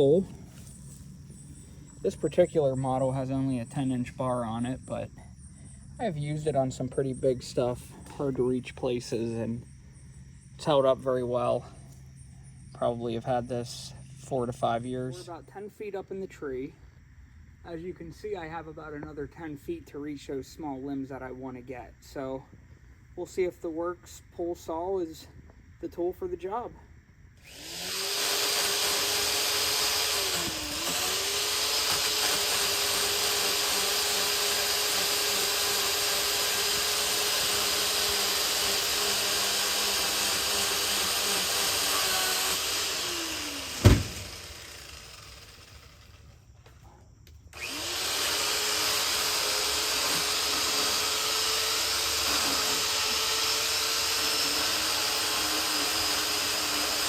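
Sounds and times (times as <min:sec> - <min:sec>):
electric pole saw running: 0:27.4 - 0:46.4, 0:47.5 - 0:57.0.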